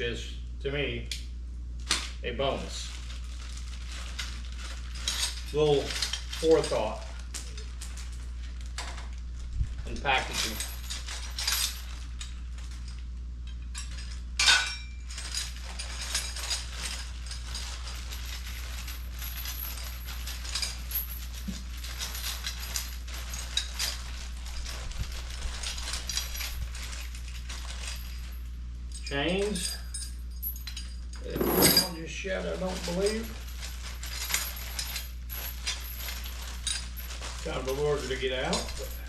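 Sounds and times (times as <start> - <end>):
metal tools clicking and clinking: 9.9 - 24.7, 25.4 - 32.0, 32.6 - 39.0
metal clank: 31.2 - 32.0.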